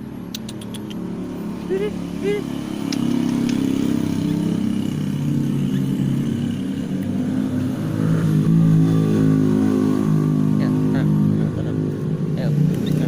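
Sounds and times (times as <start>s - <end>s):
vehicle engine running: 0.0s - 9.3s.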